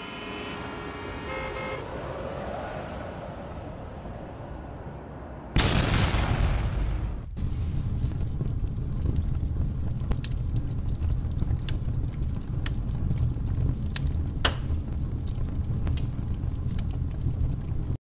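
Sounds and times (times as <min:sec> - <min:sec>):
fire crackling and popping: 0:05.6 - 0:18.0.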